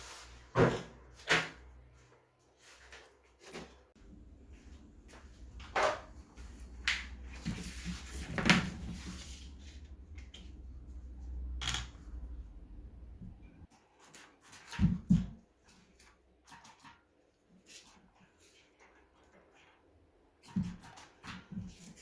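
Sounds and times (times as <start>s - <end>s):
low steady hum: 4.0s - 13.7s.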